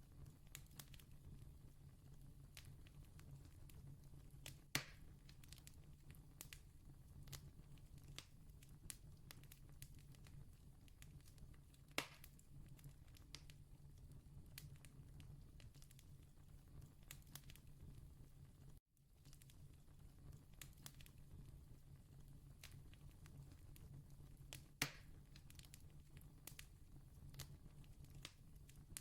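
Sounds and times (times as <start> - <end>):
campfire crackling: 0.2 - 1.5, 2.4 - 13.6, 19.2 - 21.8, 22.5 - 29.0
fire pops: 2.5 - 6.6, 7.2 - 13.6, 22.6 - 29.0.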